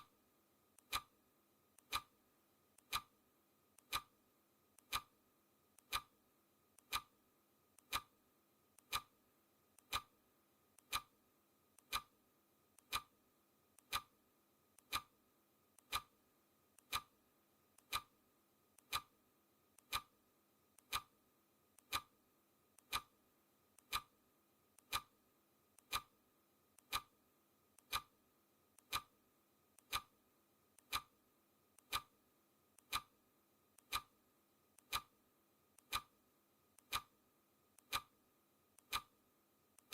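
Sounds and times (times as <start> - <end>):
clock ticking: 0.8 - 1.2, 1.8 - 2.2, 2.8 - 3.1, 3.8 - 4.1, 4.8 - 5.2, 5.8 - 6.2, 6.8 - 7.1, 7.8 - 8.2, 8.8 - 9.2, 9.8 - 10.2, 10.8 - 11.2, 11.8 - 12.2, 12.8 - 13.1, 13.8 - 14.2, 14.8 - 15.1, 15.8 - 16.2, 16.8 - 17.2, 17.8 - 18.2, 18.8 - 19.2, 19.8 - 20.2, 20.8 - 21.2, 21.8 - 22.2, 22.8 - 23.2, 23.8 - 24.2, 24.8 - 25.2, 25.8 - 26.2, 26.8 - 27.2, 27.8 - 28.2, 28.8 - 29.2, 29.8 - 30.2, 30.8 - 31.2, 31.8 - 32.2, 32.8 - 33.2, 33.8 - 34.2, 34.8 - 35.2, 35.8 - 36.2, 36.8 - 37.2, 37.8 - 38.2, 38.8 - 39.2.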